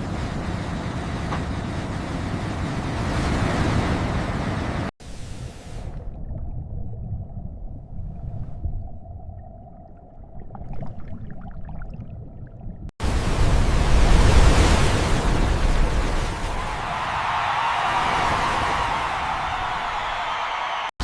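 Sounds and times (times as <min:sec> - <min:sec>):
rushing water and wind: 0:00.0 - 0:06.3, 0:13.0 - 0:21.0
muffled underwater rumble: 0:05.1 - 0:14.1.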